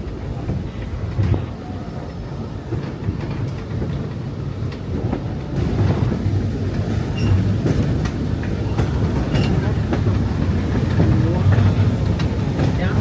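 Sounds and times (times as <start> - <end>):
train car rumbling on rails: 0.0 - 13.0.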